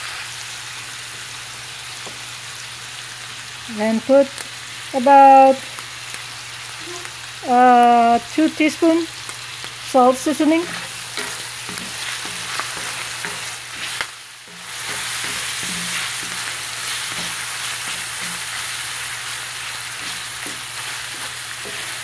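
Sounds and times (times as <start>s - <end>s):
meat sizzling in a skillet: 0.0s - 22.0s
wooden spatula scraping a pan: 10.6s - 22.0s.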